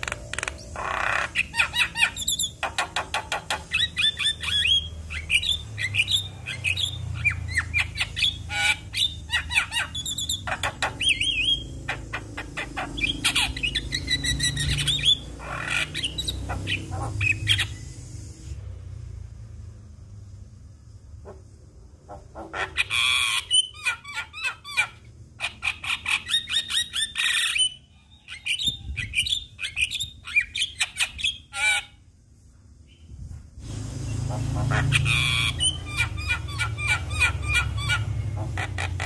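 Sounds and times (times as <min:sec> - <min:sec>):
bird singing rapid chatter: 0:00.0 - 0:18.2, 0:33.9 - 0:39.0.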